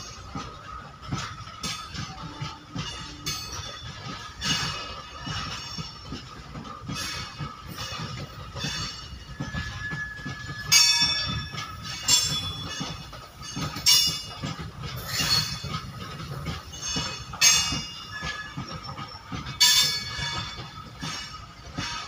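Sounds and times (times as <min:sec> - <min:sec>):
train wheels rumbling on rail: 0:00.0 - 0:22.0
metallic wheel screeches: 0:06.9 - 0:22.0.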